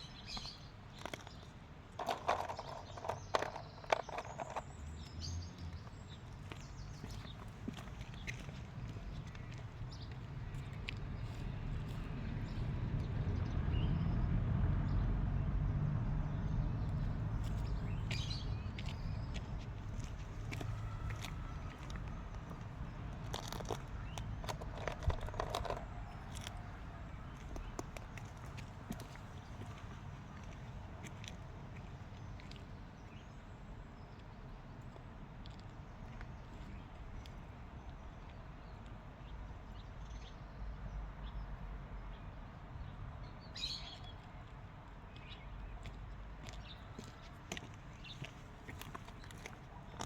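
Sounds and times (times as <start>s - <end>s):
small birds chirping: 0.0s - 12.8s, 16.3s - 35.0s
low outdoor rumble: 1.0s - 32.6s.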